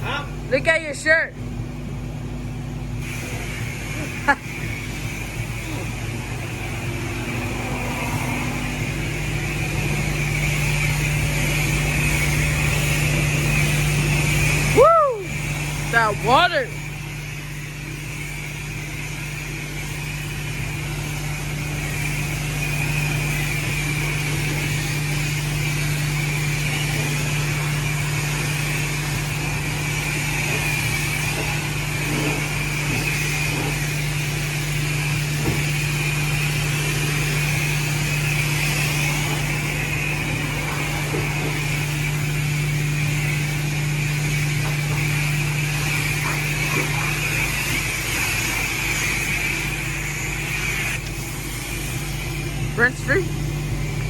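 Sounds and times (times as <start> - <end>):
constant low hum: 0.0 - 54.0
pressure wand spraying water: 2.8 - 54.0.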